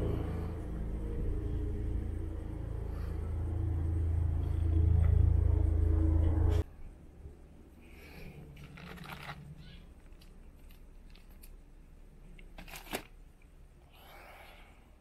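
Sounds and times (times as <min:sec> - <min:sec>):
packaging rustling and clicking: 0:08.6 - 0:11.6, 0:12.3 - 0:13.2.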